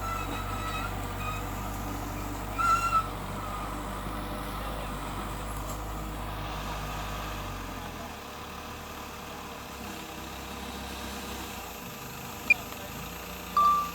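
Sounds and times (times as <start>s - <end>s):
high squeal: 0.0s - 1.6s, 2.6s - 3.6s
bulldozer engine running: 0.0s - 13.9s.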